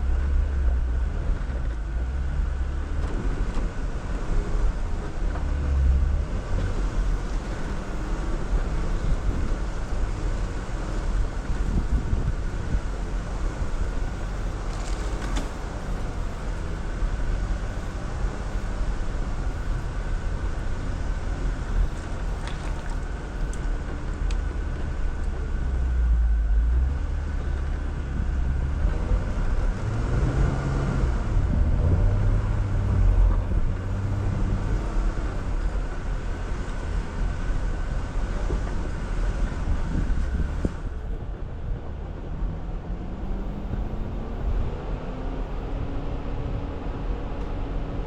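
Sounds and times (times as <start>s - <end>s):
off-road vehicle engine rumbling: 0.0s - 48.0s.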